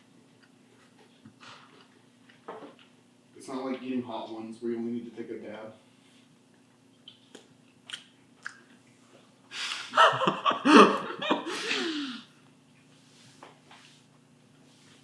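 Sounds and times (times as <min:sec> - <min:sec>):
person's breathy vocal outburst: 0:10.7 - 0:12.3.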